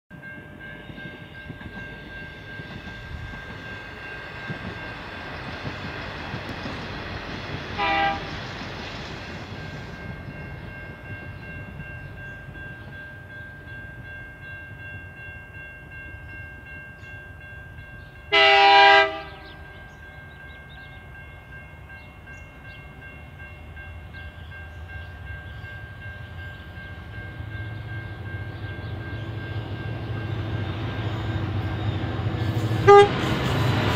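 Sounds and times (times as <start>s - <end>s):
train horn blast: 7.8s - 8.4s, 18.3s - 19.7s, 31.2s - 33.8s.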